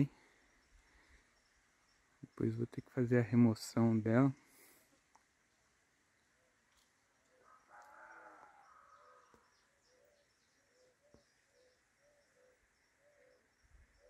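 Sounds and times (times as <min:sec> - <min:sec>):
faint bird calls: 0:06.1 - 0:14.0.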